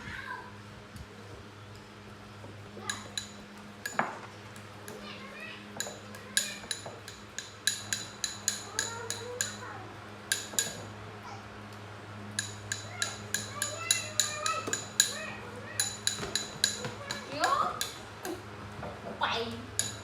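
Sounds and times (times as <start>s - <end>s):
ringing clinks of hard objects: 2.8s - 4.3s, 5.8s - 9.7s, 10.3s - 11.0s, 12.3s - 18.1s, 19.7s - 20.0s.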